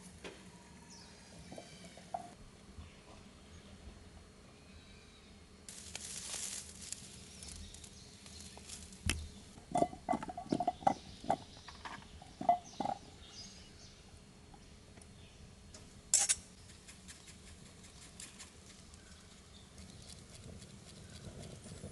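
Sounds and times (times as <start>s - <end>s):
rustling: 5.7s - 9.6s.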